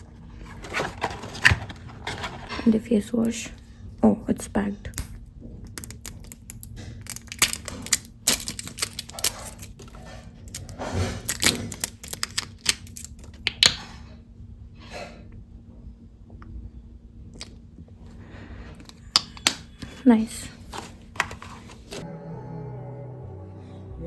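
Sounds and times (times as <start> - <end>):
plastic packaging crinkling: 5.8 - 13.5.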